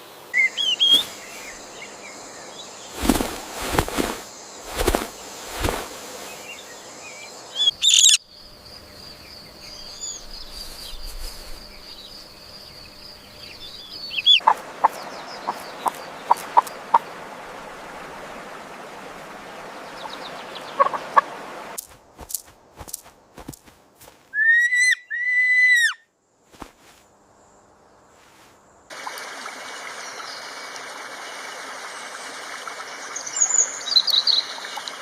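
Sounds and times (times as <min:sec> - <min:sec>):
bird calls: 0:00.4 - 0:17.2, 0:19.6 - 0:21.3, 0:24.3 - 0:26.0.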